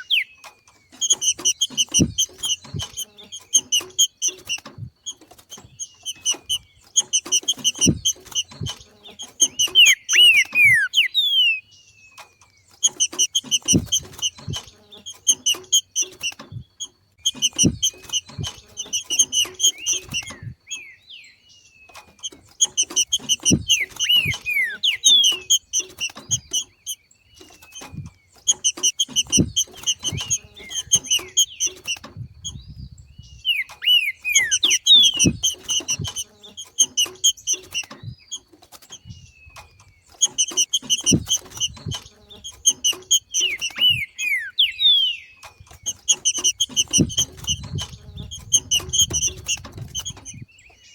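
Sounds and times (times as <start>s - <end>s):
bird chattering call: 0.0s - 4.6s, 5.8s - 11.7s, 17.2s - 21.0s, 22.0s - 32.6s, 33.4s - 38.1s, 40.0s - 50.4s
downward-sliding whistles: 9.6s - 11.6s.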